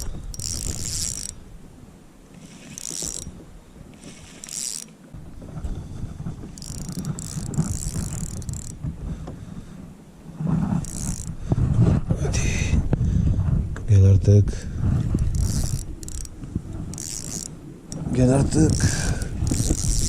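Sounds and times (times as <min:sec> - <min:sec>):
fishing reel whirring: 0:00.0 - 0:01.4, 0:02.4 - 0:03.4, 0:04.0 - 0:05.0, 0:06.5 - 0:08.8, 0:10.8 - 0:11.4, 0:15.2 - 0:20.0.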